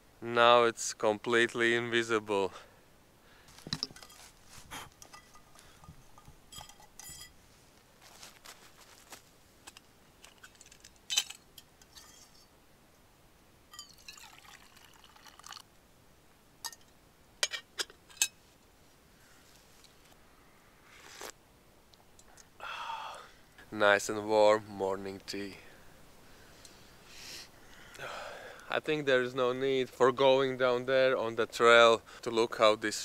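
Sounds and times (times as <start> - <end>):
metal cup clinks and knocks: 3.7 - 4.3, 5.0 - 7.4, 13.7 - 14.4, 16.6 - 18.4
tea being poured: 13.7 - 15.6.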